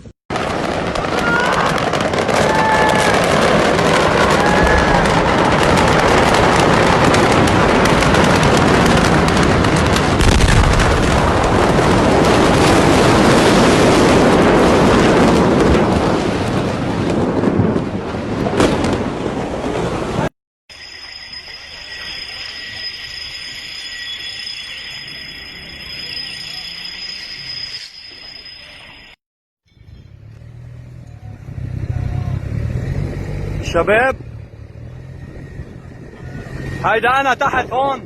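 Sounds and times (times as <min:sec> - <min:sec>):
explosion and fire roaring: 0:00.0 - 0:20.3
sharp popping crackles: 0:00.3 - 0:19.2
heavy low boom: 0:00.3 - 0:19.5
faint shouts: 0:01.1 - 0:01.8.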